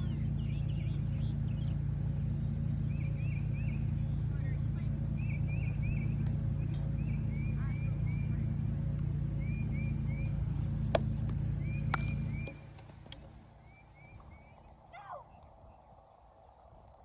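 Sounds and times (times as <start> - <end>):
low rumble: 0.0 - 12.8.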